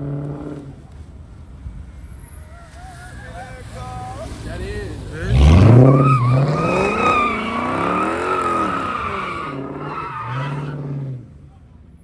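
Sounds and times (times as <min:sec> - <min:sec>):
car engine revving: 0:01.8 - 0:11.3
tyres squealing: 0:02.1 - 0:10.8.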